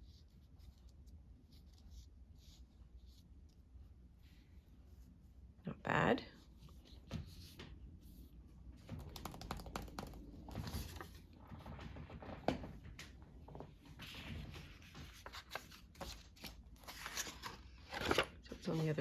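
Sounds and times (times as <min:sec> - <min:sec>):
small clicks and scratches: 0:08.8 - 0:18.3
paper rustling: 0:08.8 - 0:19.0.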